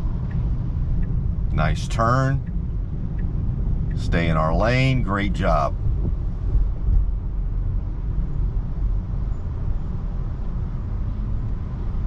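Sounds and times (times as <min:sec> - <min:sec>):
road and tyre rumble: 0:00.0 - 0:12.0.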